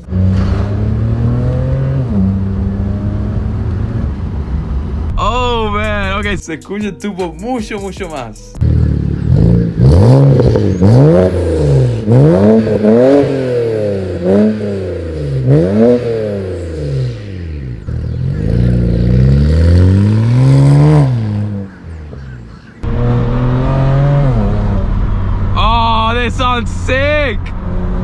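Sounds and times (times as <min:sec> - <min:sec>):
car engine revving through loud exhaust: 0:00.0 - 0:04.7, 0:08.6 - 0:25.6.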